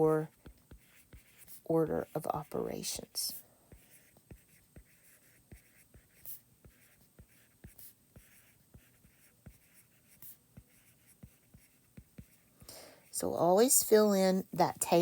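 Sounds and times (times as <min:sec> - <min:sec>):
pen writing on paper: 0:00.4 - 0:02.2, 0:03.8 - 0:12.5.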